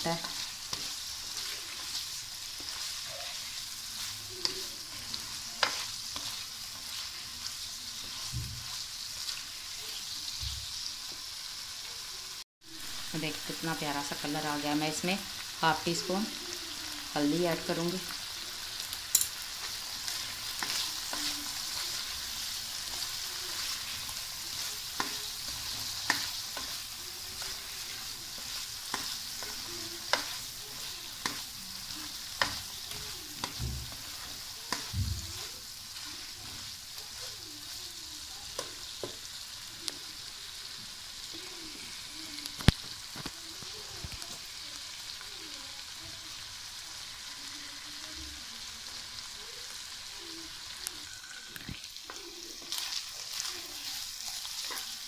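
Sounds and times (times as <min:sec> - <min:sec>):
chicken sizzling in oil: 0:00.0 - 0:55.0
spoon stirring: 0:19.1 - 0:36.7.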